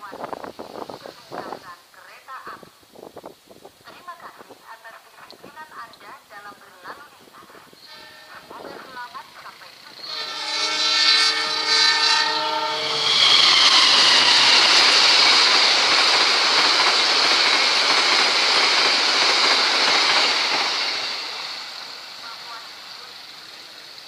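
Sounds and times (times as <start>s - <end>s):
locomotive horn blast: 7.8s - 8.9s, 10.0s - 14.7s
train wheels clattering on rails: 13.1s - 24.0s.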